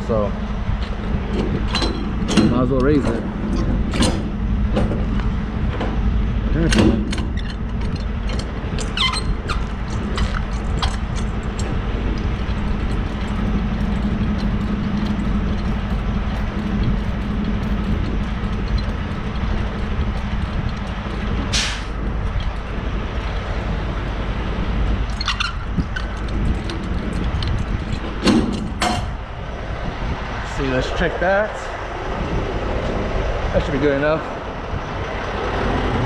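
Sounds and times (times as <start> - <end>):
diesel engine idling: 0.0 - 36.0
short hiss: 21.5 - 21.9.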